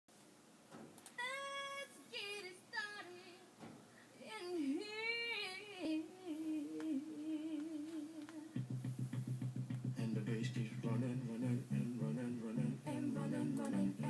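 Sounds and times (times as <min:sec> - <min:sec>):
solo voice singing long notes: 0:09.9 - 0:14.0.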